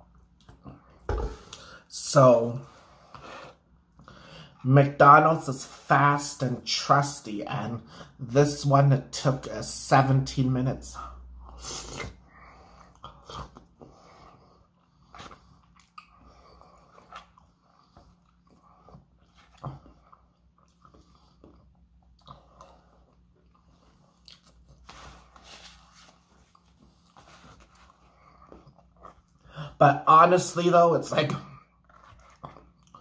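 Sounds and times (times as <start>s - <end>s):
person chewing fries: 11.4s - 24.9s, 26.2s - 29.6s, 31.5s - 33.0s.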